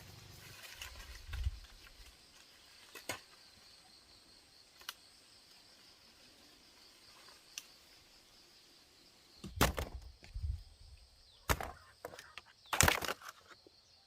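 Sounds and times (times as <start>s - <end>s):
rustling: 0.0s - 3.3s
insects humming: 0.0s - 14.0s
loud thuds: 9.4s - 10.2s.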